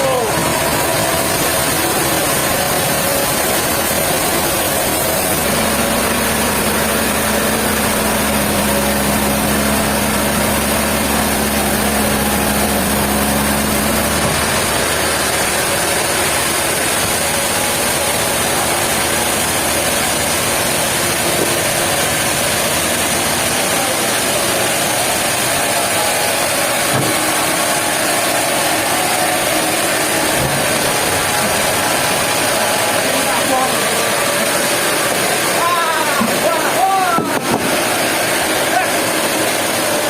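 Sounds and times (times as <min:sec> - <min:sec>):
machinery engine running: 0:00.0 - 0:40.0.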